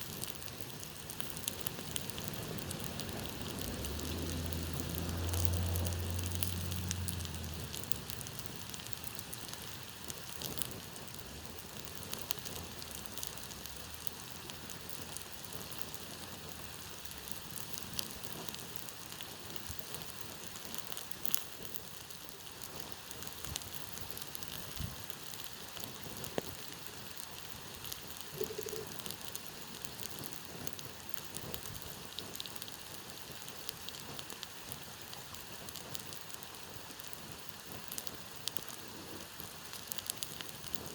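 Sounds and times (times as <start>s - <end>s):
campfire crackling and popping: 0.0s - 40.9s
low hum: 1.6s - 9.0s.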